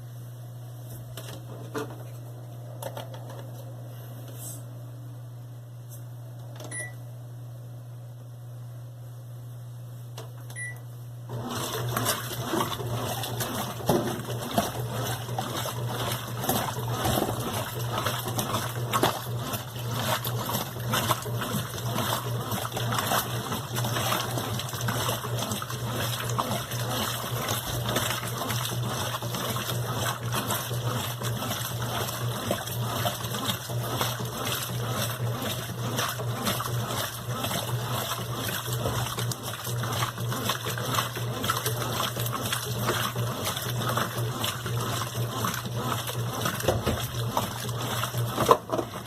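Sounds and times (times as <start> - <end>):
washing machine beep: 6.6 - 7.1, 10.5 - 16.1.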